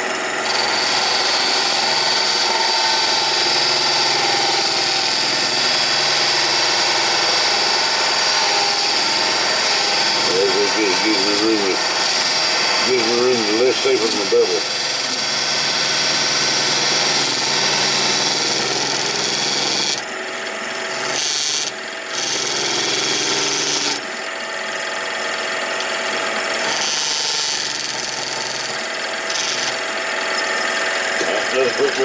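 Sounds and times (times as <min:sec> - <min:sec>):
lathe motor hum: 0:00.0 - 0:32.0
lathe tool cutting wood: 0:00.0 - 0:32.0.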